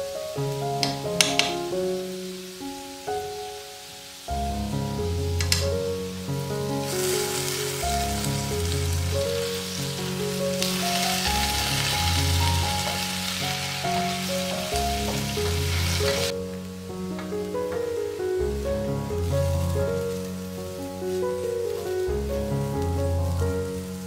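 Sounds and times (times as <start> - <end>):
background music: 0.0 - 24.0
potatoes sizzling in a pan: 0.4 - 24.0.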